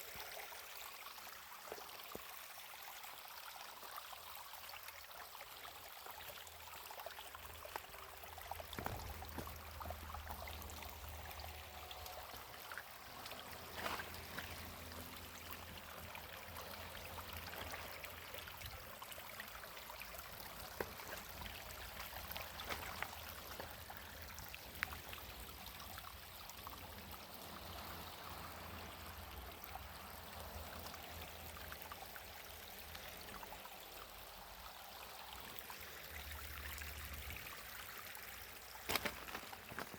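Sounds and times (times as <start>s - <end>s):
running water babbling: 0.0s - 39.9s
small splashes and clicks: 7.2s - 28.0s, 35.4s - 39.9s.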